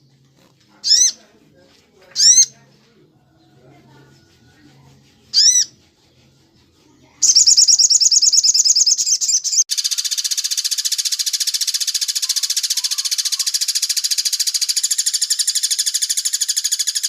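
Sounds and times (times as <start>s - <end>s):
fast rattling bird trill: 0.8s - 1.2s, 2.2s - 2.5s, 5.1s - 6.2s, 7.2s - 17.0s
loud arched bird calls: 7.2s - 17.0s.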